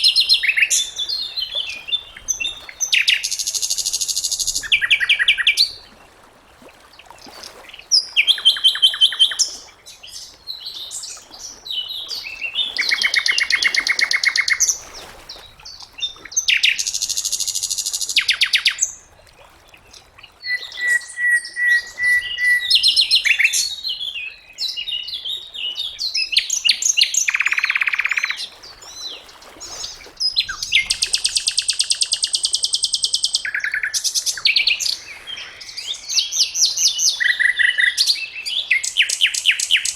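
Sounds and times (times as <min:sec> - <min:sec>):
long steady bird whistle: 0:16.4 - 0:18.8, 0:20.4 - 0:24.8
songbird singing trills and chirps: 0:20.4 - 0:39.9.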